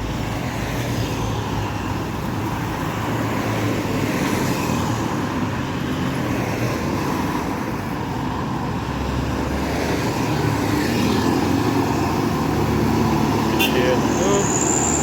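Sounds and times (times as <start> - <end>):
highway traffic passing: 0.0 - 15.0.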